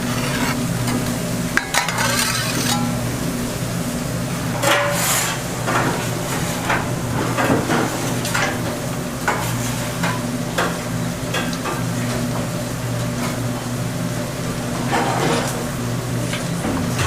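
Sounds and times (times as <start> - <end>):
metal utensil scraping and clinking: 1.8 - 3.0.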